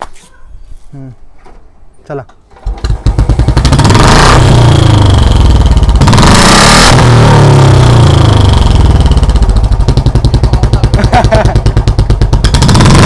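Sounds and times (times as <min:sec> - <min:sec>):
motorcycle engine running: 0:02.6 - 0:13.0.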